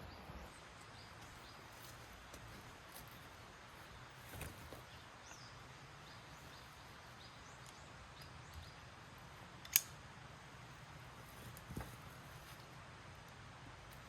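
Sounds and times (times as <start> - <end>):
small birds chirping: 0.0 - 9.8
sharp click: 9.6 - 10.0.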